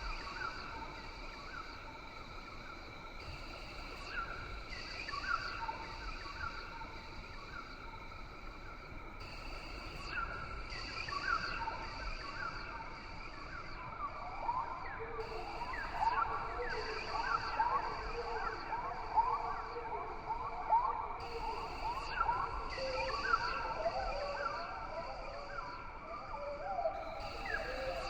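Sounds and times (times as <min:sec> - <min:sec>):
high insect drone: 0:27.0 - 0:28.0.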